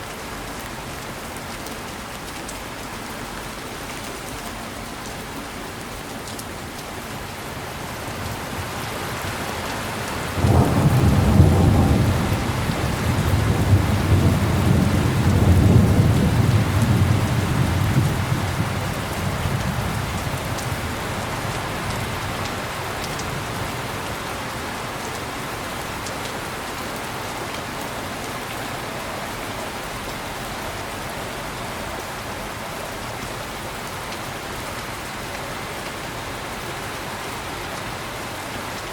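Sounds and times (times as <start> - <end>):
heavy rain: 0.0 - 38.9
rolling thunder: 10.3 - 20.7.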